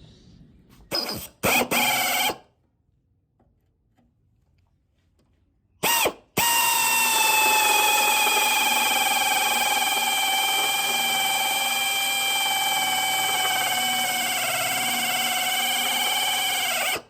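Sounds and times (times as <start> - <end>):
power tool whining: 5.8 - 17.0.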